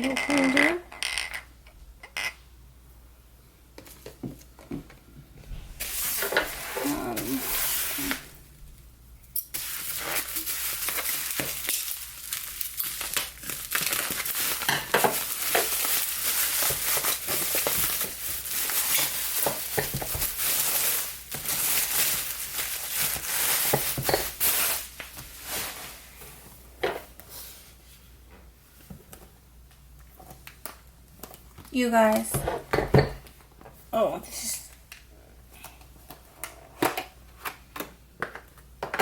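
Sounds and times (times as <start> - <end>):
packaging crinkling and crackling: 9.5 - 26.0.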